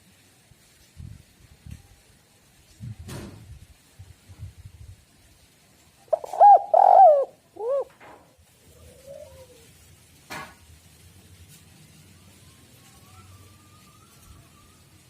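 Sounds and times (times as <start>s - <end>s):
dove cooing: 6.1s - 8.0s, 8.6s - 9.8s.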